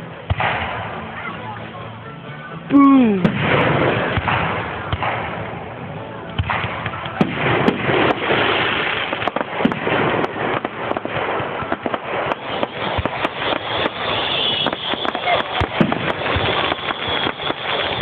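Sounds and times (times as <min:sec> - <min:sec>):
fireworks bangs and crackles: 0:00.0 - 0:02.2, 0:03.0 - 0:18.0.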